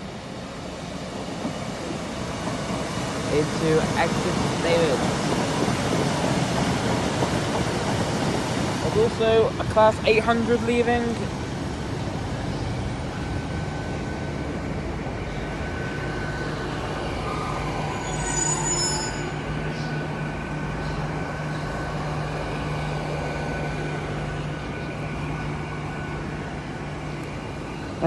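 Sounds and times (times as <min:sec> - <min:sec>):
diesel train engine hum: 0:00.0 - 0:28.0
wheels squealing on rails: 0:15.3 - 0:26.8.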